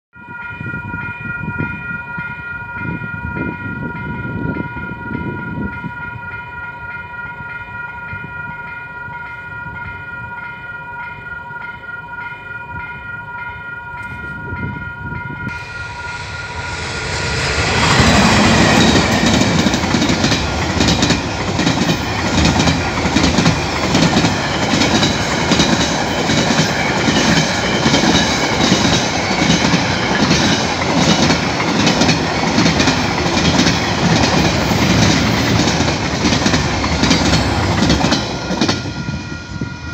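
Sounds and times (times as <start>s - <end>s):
train wheels clattering over rails: 16.7s - 39.0s.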